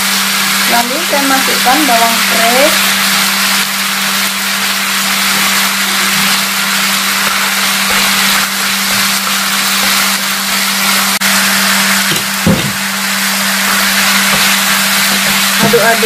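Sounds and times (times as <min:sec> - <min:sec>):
food sizzling in a frying pan: 0:00.0 - 0:16.0
chopsticks stirring: 0:04.1 - 0:11.2.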